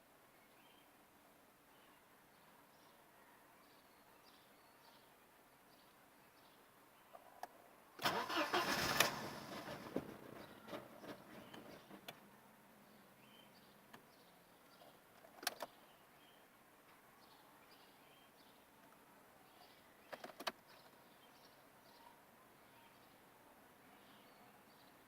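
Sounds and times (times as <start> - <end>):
faint bird chirps: 1.6 - 7.7, 12.8 - 25.0.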